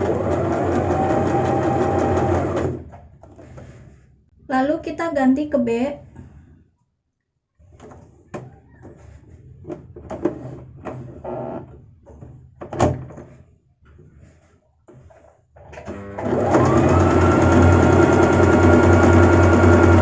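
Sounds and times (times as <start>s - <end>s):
sewing machine stitching: 0.0s - 2.9s, 15.7s - 20.0s.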